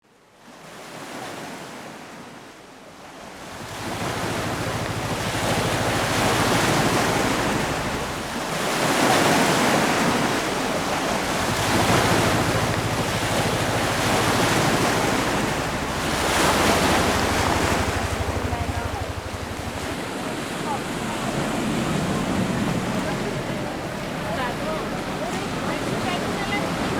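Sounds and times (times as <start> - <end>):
sea waves washing in: 3.1 - 26.9
low hum: 4.3 - 8.8, 10.3 - 26.8.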